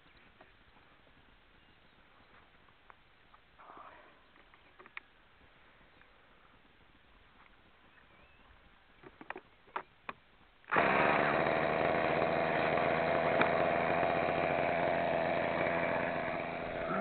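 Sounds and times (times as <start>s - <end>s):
model helicopter engine running: 10.7s - 17.0s.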